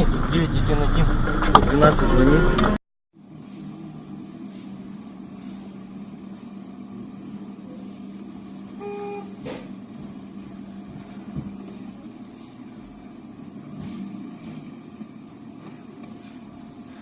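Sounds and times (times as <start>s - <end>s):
car engine and road hum: 0.0s - 17.0s
car horn toot: 8.7s - 9.5s.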